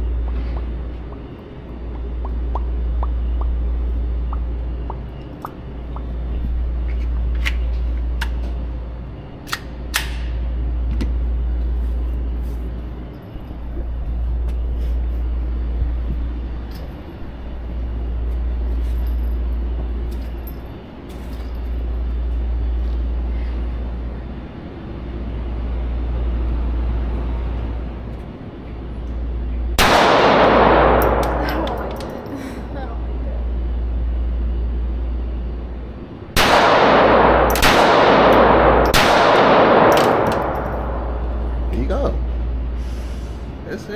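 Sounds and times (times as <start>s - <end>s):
low rumble: 0.0s - 43.6s
handgun shot: 36.4s - 41.0s.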